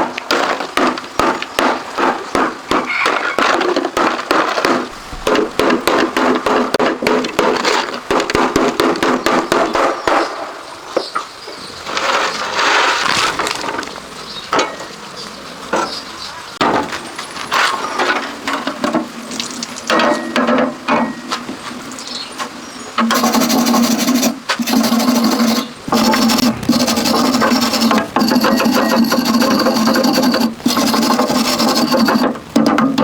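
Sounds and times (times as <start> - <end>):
rapid tapping and knocking: 0.3 - 9.9, 23.0 - 33.0
scraping or filing: 23.1 - 32.4.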